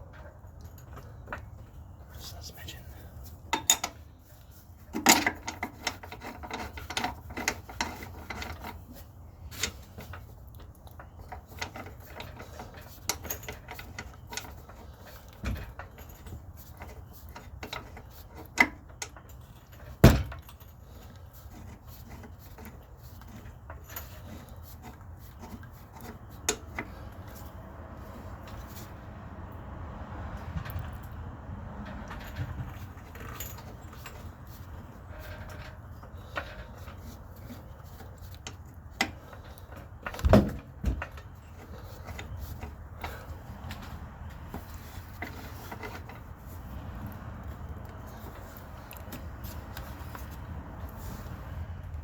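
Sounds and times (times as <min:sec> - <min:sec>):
metal tools clinking and knocking: 0:03.5 - 0:10.3, 0:31.8 - 0:46.3.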